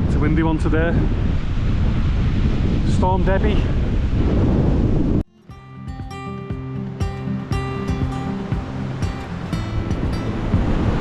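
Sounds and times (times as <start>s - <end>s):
wind buffeting microphone: 0.0s - 5.3s, 7.5s - 11.0s
acoustic guitar music: 5.3s - 11.0s.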